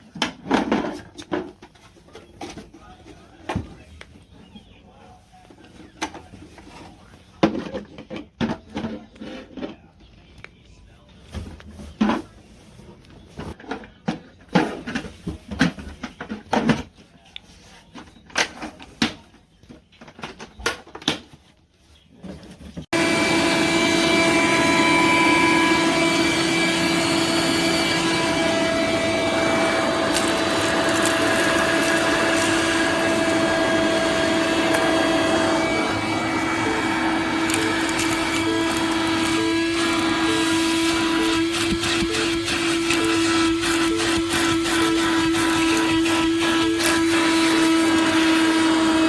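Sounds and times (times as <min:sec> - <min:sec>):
shop vacuum running: 0:22.9 - 0:49.0.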